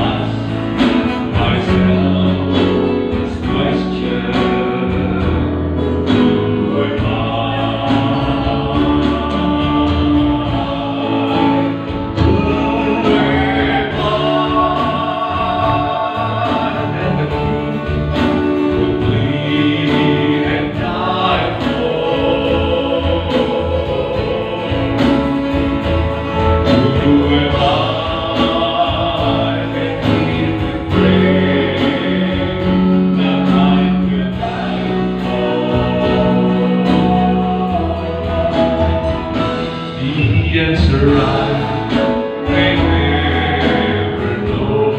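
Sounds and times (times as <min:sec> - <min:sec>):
guitar accompaniment: 0:00.0 - 0:44.9
person singing gospel song: 0:00.0 - 0:44.9.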